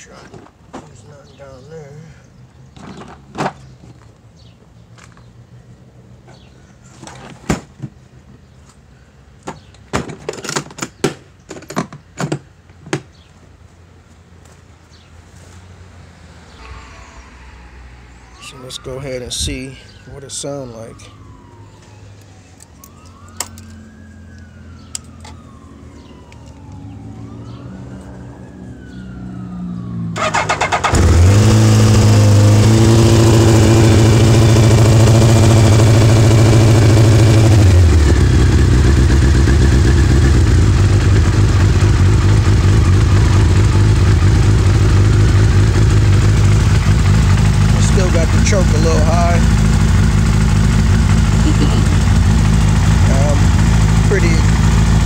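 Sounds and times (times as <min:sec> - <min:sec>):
motorcycle engine cranking: 0:30.2 - 0:32.1
motorcycle engine idling: 0:31.8 - 0:55.0.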